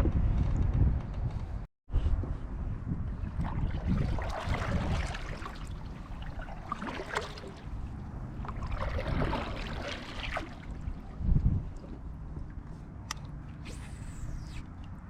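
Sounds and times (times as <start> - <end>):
water sloshing against kayak hull: 3.2 - 13.6.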